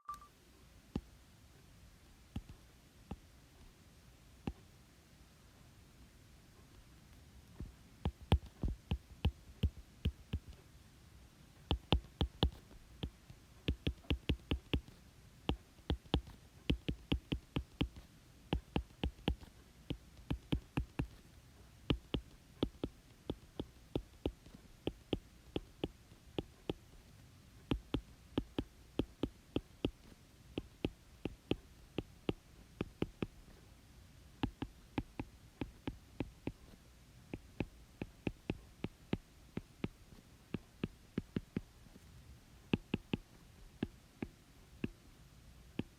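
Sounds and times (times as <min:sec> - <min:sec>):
pen tapping on hard surface: 0:13.7 - 0:14.9, 0:15.9 - 0:18.0.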